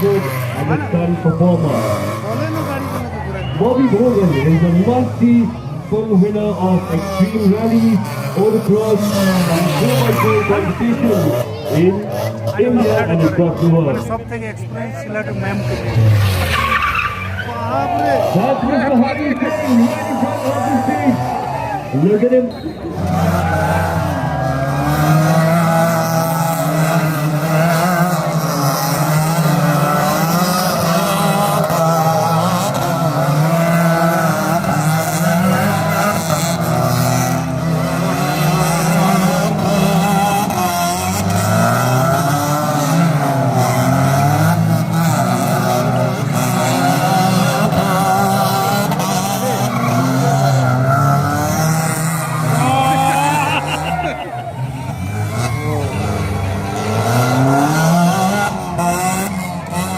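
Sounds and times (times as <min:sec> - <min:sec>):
tyres squealing and skidding: 0:00.0 - 0:05.4, 0:06.6 - 0:14.1, 0:15.4 - 0:59.9
car engines revving: 0:00.0 - 0:59.9.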